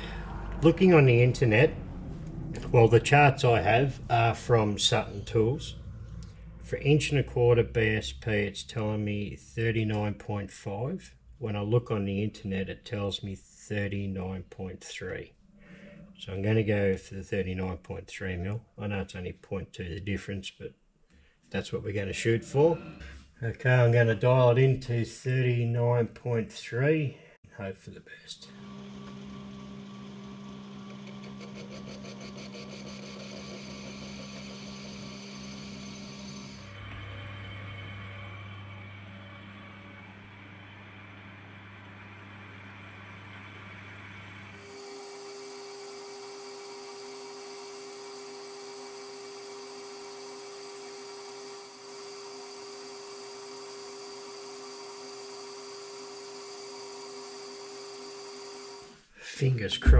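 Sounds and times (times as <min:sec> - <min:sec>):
metal lathe running: 0:28.5 - 0:38.2, 0:44.6 - 0:59.0.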